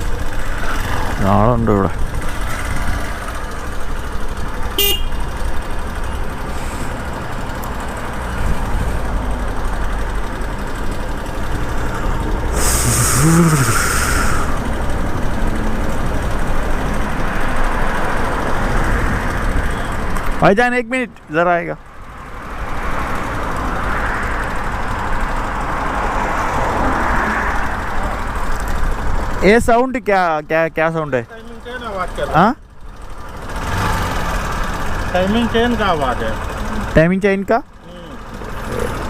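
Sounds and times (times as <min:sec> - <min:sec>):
motorcycle engine running: 0:00.0 - 0:20.5, 0:31.2 - 0:39.0
hiss: 0:12.5 - 0:14.6.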